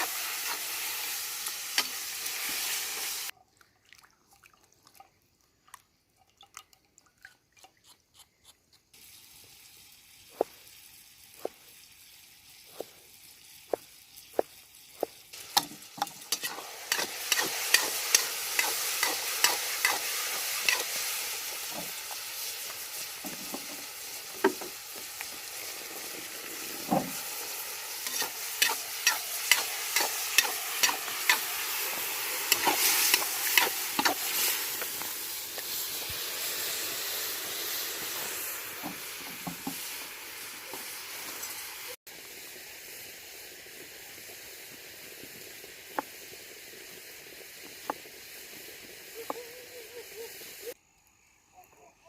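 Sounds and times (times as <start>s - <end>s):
food sizzling in a pot: 0.0s - 3.4s, 8.9s - 50.8s
utensil scraping a pot: 28.0s - 31.4s.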